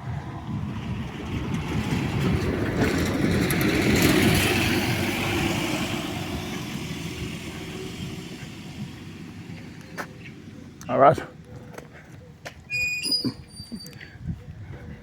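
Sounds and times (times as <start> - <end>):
bus driving past: 0.0 - 11.4.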